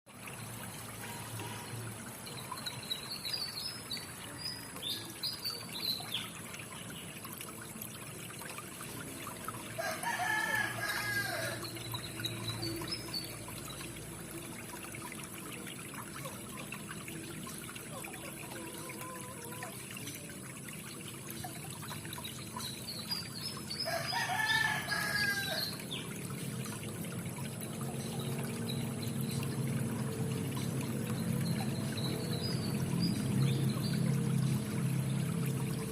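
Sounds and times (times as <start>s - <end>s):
rooster crowing: 9.8s - 11.6s, 23.9s - 25.6s.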